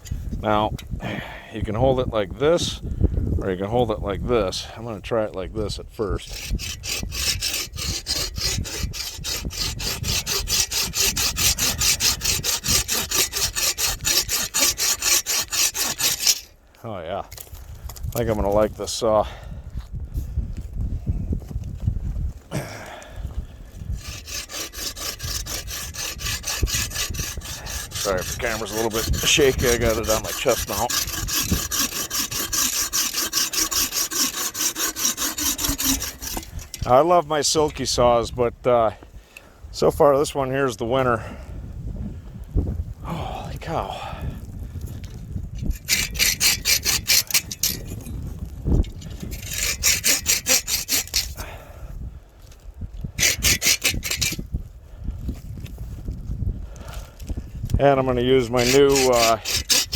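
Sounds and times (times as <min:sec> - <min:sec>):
bow saw cutting wood: 0:06.2 - 0:16.6, 0:23.9 - 0:37.8, 0:45.6 - 0:48.1, 0:48.8 - 0:51.5, 0:53.2 - 0:54.4, 0:57.9 - 0:59.9.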